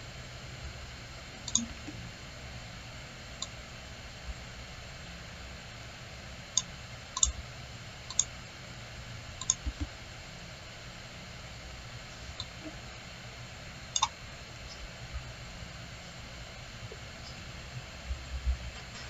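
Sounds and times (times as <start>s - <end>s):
low background hum: 0.0s - 19.0s
computer mouse clicking: 1.5s - 2.0s, 6.6s - 7.4s, 8.1s - 8.3s, 9.4s - 9.9s, 12.4s - 12.7s.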